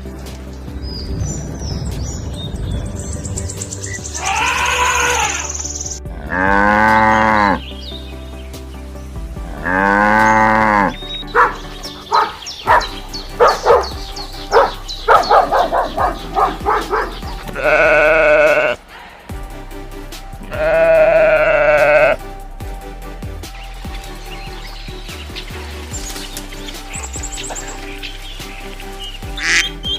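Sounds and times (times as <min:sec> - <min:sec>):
background music: 0:00.0 - 0:29.9
cattle mooing: 0:06.1 - 0:07.6, 0:09.5 - 0:18.9, 0:20.4 - 0:22.2.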